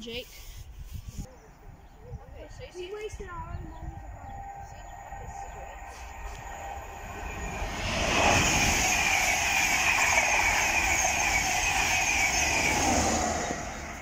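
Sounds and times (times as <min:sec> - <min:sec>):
passenger train passing: 0:02.3 - 0:14.0.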